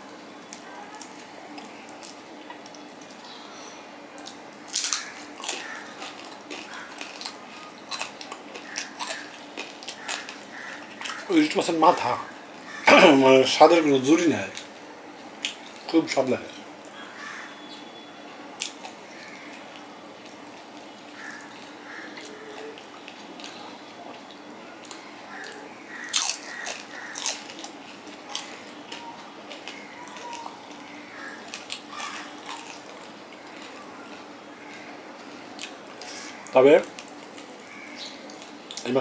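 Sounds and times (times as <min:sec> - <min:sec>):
chewing and biting food: 0:04.2 - 0:11.3, 0:18.6 - 0:38.9.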